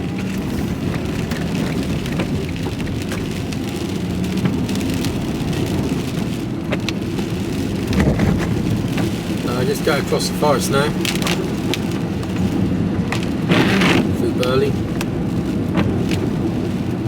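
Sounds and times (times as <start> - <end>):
raindrops ticking on cab: 0.0 - 17.0
truck engine and road rumble: 0.0 - 17.0.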